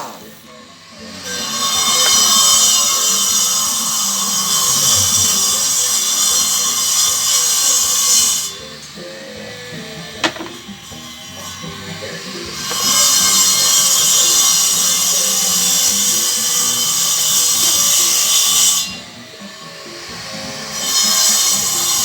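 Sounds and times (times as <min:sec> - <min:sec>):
workshop tool hissing whine: 0:00.0 - 0:22.0.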